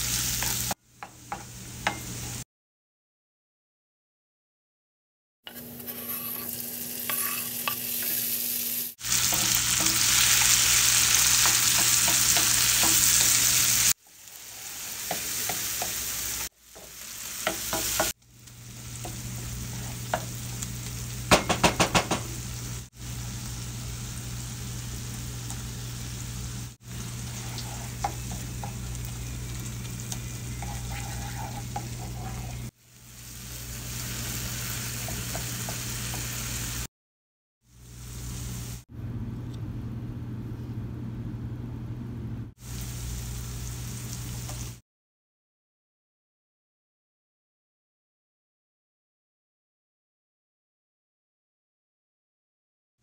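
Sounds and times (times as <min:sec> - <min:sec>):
food sizzling in a pan: 0:00.0 - 0:02.4, 0:05.5 - 0:36.9, 0:37.7 - 0:38.9, 0:42.6 - 0:44.8.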